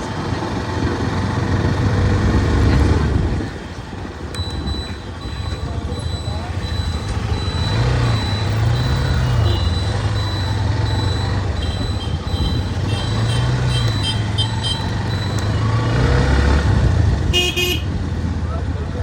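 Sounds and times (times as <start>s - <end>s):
road noise: 0.0s - 19.0s
vehicle engine running: 0.0s - 19.0s
short high beeps: 4.4s - 16.0s
car horn toot: 8.9s - 10.0s, 11.5s - 15.0s, 17.3s - 18.0s.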